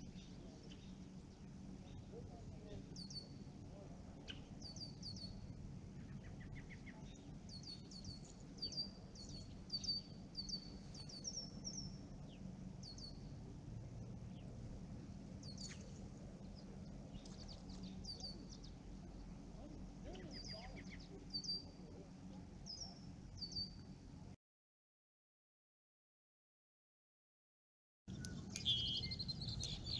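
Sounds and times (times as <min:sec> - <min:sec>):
small songbirds chirping: 0:00.0 - 0:03.5, 0:04.2 - 0:14.6, 0:15.4 - 0:23.9, 0:28.1 - 0:29.9
faint low background rumble: 0:00.0 - 0:24.4, 0:28.1 - 0:29.9.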